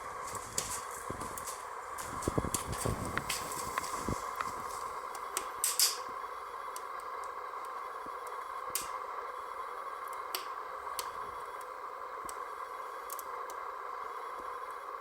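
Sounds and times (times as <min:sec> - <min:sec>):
stove fire draft rushing: 0:00.0 - 0:06.0
fire crackles: 0:00.0 - 0:06.1.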